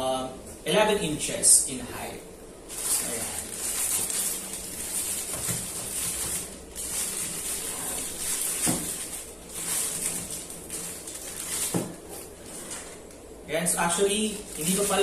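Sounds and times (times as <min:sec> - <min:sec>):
plastic packaging crinkling: 0:02.7 - 0:13.1, 0:14.2 - 0:15.0.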